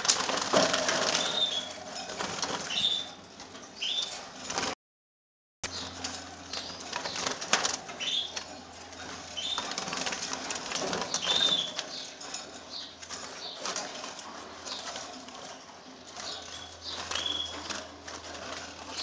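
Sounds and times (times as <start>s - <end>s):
birds fluttering wings: 0.0s - 4.8s, 5.7s - 19.0s
bird chirps: 1.2s - 1.8s, 2.7s - 3.2s, 3.8s - 4.2s, 8.0s - 8.4s, 9.4s - 9.7s, 11.1s - 13.6s, 16.3s - 17.7s.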